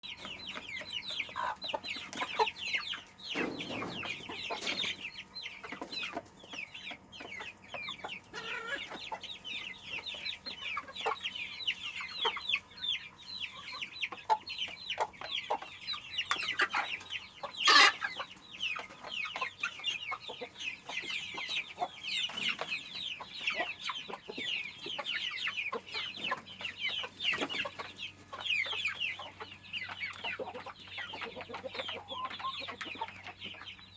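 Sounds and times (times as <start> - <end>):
chickens clucking: 0.0 - 33.9
chicken squawk: 8.3 - 9.0, 17.6 - 18.2.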